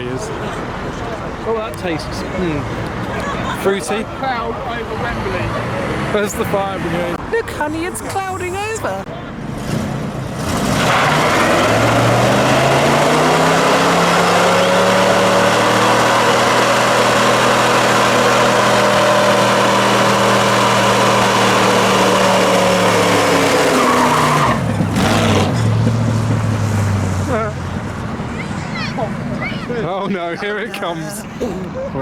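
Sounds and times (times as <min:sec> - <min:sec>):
car engine high revs: 0:04.7 - 0:28.5
tyres squealing: 0:07.4 - 0:25.7.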